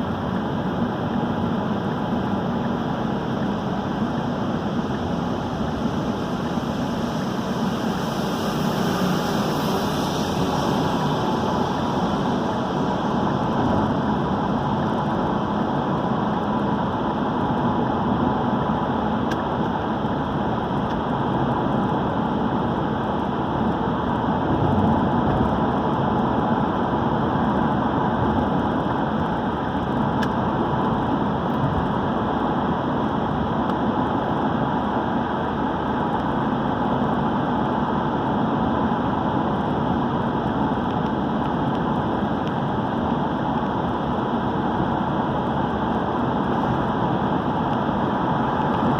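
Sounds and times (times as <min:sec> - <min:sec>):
car engine hum: 0:00.0 - 0:48.9
tyres hissing on wet road: 0:06.9 - 0:13.6.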